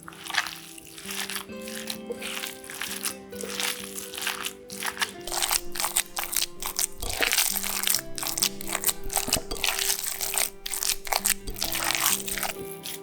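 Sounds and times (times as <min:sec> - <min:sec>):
background music with held tones: 0:00.0 - 0:13.0
crunchy crinkling food preparation: 0:00.0 - 0:13.0.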